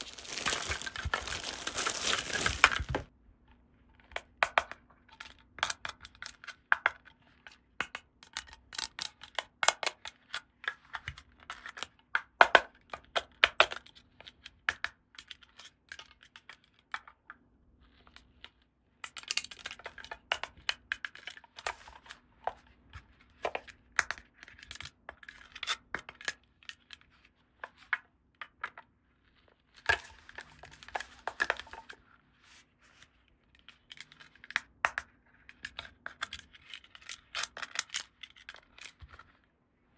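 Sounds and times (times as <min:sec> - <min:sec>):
packaging tearing and crinkling: 0:00.0 - 0:03.1.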